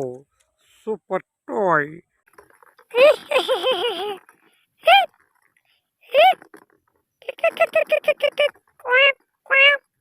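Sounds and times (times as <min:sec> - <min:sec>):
person rattling off short syllables: 0:02.8 - 0:10.0.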